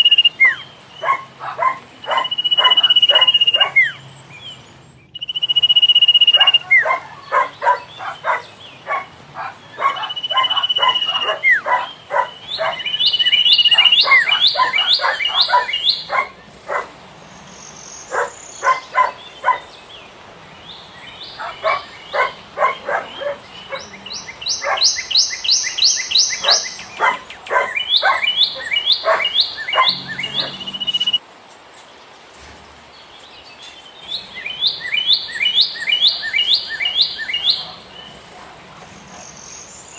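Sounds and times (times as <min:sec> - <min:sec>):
bird calling chip notes and whistles: 0:00.0 - 0:01.2, 0:02.0 - 0:04.0, 0:05.1 - 0:07.0, 0:09.8 - 0:11.8, 0:12.5 - 0:16.1, 0:24.2 - 0:31.2, 0:34.5 - 0:37.6.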